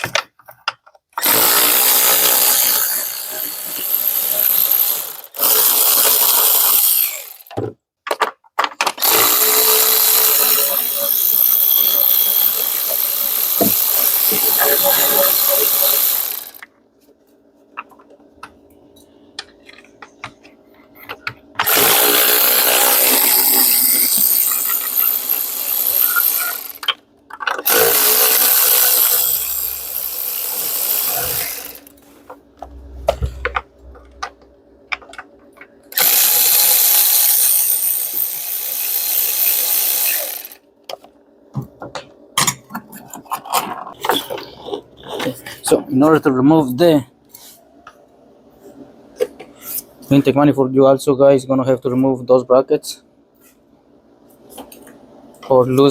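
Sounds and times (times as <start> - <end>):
power tool spinning bolts: 1.2 - 7.6, 8.8 - 16.7, 21.6 - 32.0, 35.9 - 40.6.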